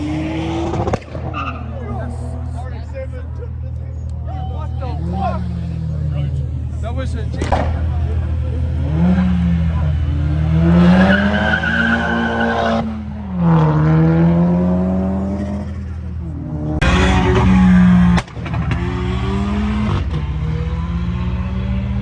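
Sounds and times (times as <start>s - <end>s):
car engine revving hard: 0.0s - 1.0s, 8.6s - 15.8s, 16.5s - 22.0s
tyre squeal: 1.2s - 1.8s.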